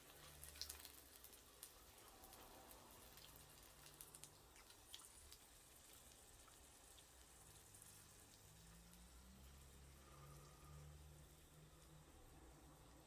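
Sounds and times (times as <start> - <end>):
twig fire crackling and ticking: 0.0 - 7.6
soft hiss: 0.0 - 13.0.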